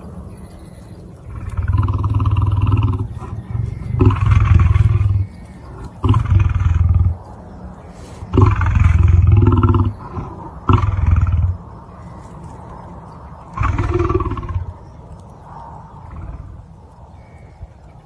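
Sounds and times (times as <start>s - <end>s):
lion roaring: 1.2s - 7.4s, 8.2s - 11.7s, 13.4s - 14.8s, 15.9s - 16.8s.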